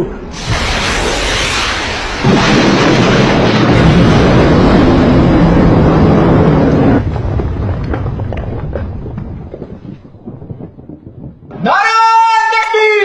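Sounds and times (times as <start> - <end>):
jet-like roar: 0.0 - 7.1
rumble with crackles: 0.0 - 12.1.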